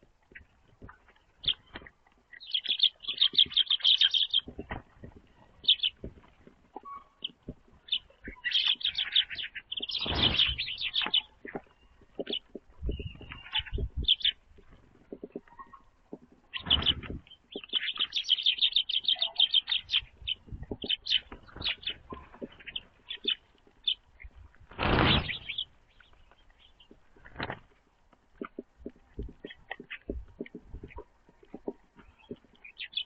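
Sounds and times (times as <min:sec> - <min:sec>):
small songbirds chirping: 0:00.0 - 0:33.0
bird wingbeats: 0:02.5 - 0:15.5, 0:19.8 - 0:27.8.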